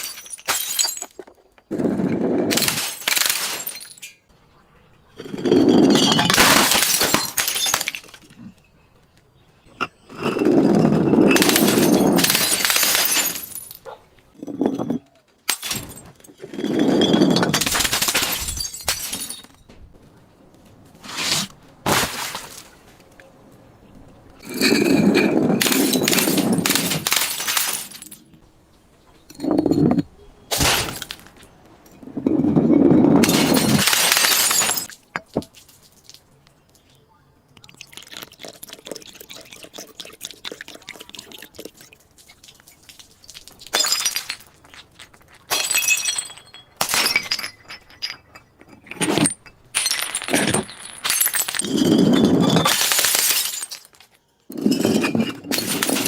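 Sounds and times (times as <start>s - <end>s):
glass bottles crushing: 0.0s - 4.2s, 5.2s - 8.6s, 9.7s - 19.7s, 24.4s - 28.4s, 29.2s - 36.2s, 37.8s - 56.0s
sharp glass cracks: 2.6s - 4.2s, 33.2s - 36.2s.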